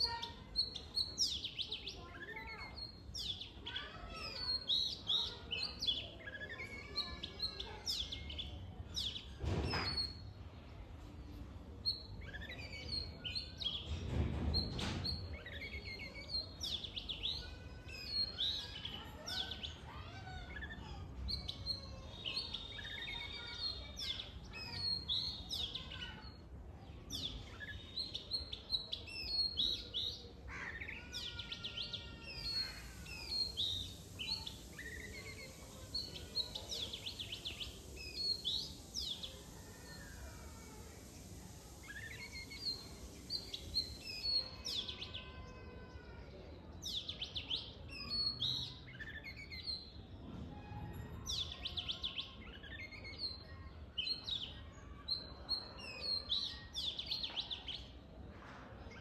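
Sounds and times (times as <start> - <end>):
birds chirping and calling: 0.0 - 10.3, 11.3 - 26.4, 27.0 - 46.1.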